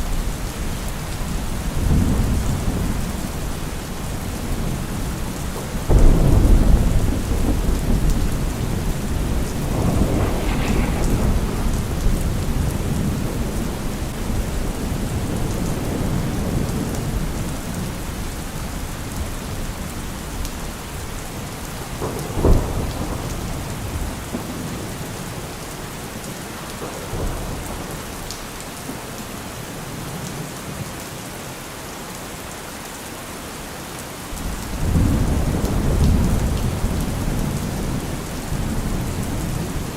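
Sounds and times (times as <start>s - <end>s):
steady rain: 0.0s - 39.9s
thunder rumbling: 1.3s - 17.9s, 34.4s - 39.9s.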